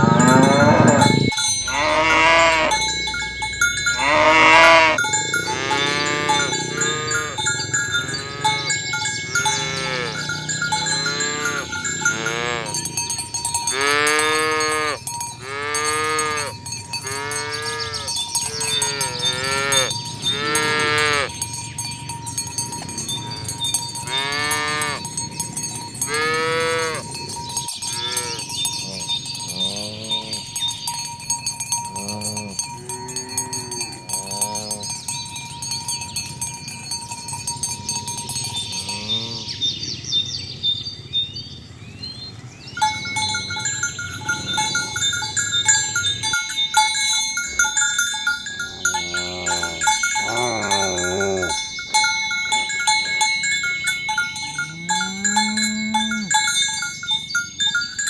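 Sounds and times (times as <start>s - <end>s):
cattle mooing: 0.0s - 21.4s, 22.7s - 30.5s, 31.9s - 35.0s, 38.7s - 39.7s, 48.6s - 51.6s, 54.6s - 56.5s.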